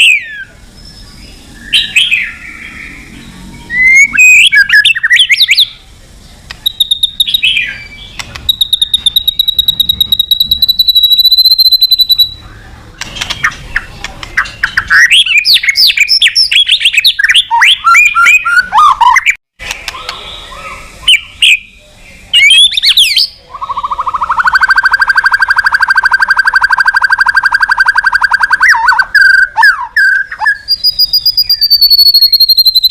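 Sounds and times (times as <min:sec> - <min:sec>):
bird singing: 0:00.0 - 0:32.9
rapid buzzing trill: 0:06.5 - 0:17.3.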